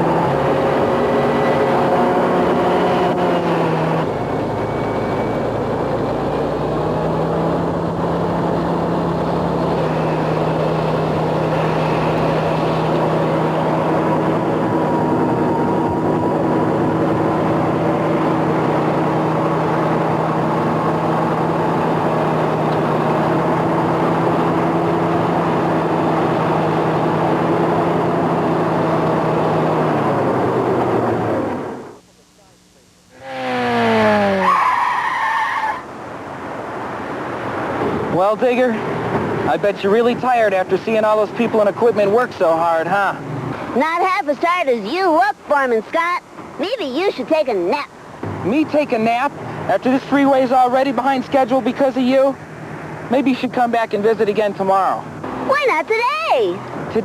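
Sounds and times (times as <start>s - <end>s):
construction machinery engine running: 0.0s - 34.6s.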